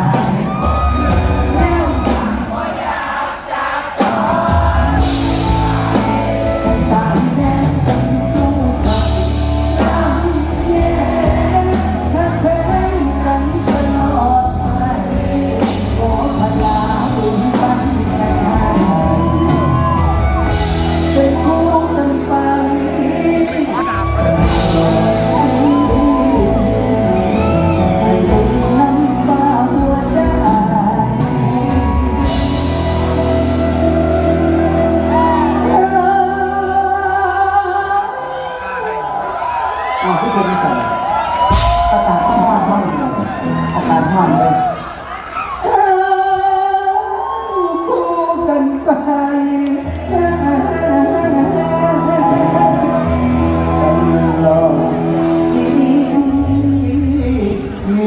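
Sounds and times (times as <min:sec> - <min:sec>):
shouted whoops: 0:00.0 - 0:02.4, 0:18.3 - 0:20.8, 0:23.7 - 0:28.4, 0:33.8 - 0:36.4, 0:38.2 - 0:46.0, 0:46.9 - 0:48.4
live band music with singing: 0:00.0 - 0:58.0.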